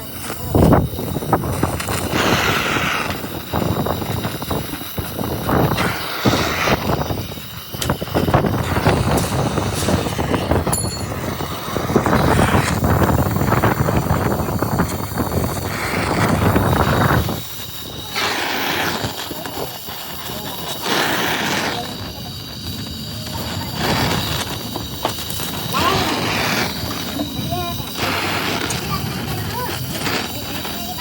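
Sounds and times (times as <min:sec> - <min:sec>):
metalworking clatter: 0:10.7 - 0:11.5.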